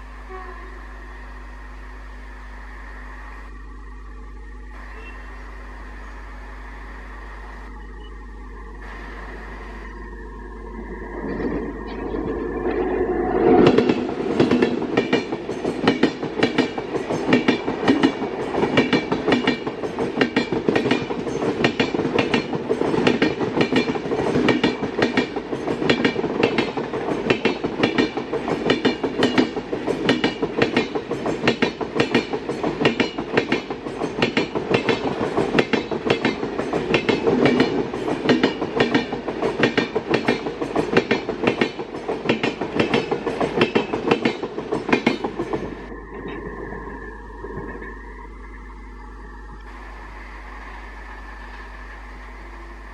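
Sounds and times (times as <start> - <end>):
train wheels clattering over rail joints: 13.6 - 46.6.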